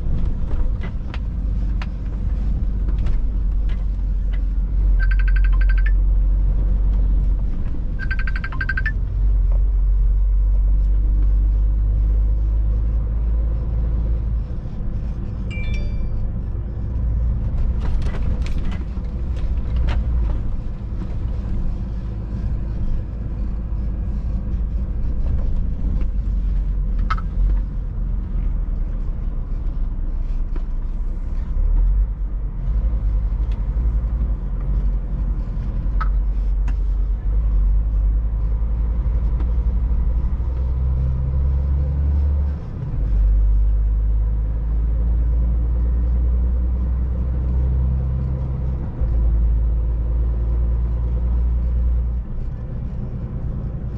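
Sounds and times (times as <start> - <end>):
road noise: 0.0 - 53.9
truck diesel engine rumbling: 0.0 - 53.9
sharp clicks: 8.0 - 9.0.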